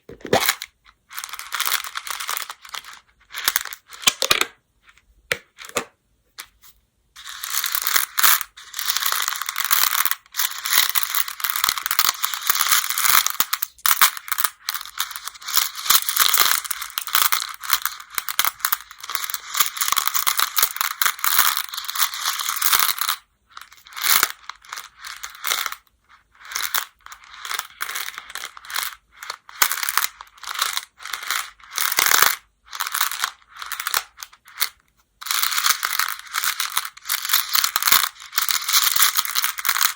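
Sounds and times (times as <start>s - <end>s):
game stones clattering: 29.6s - 39.9s.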